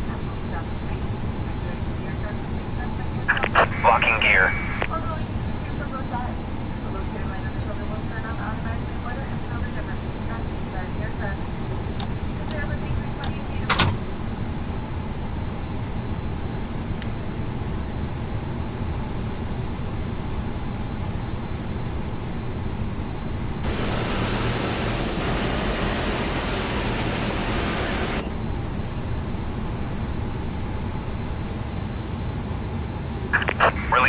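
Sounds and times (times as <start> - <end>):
aircraft ventilation rushing: 23.6 - 32.0.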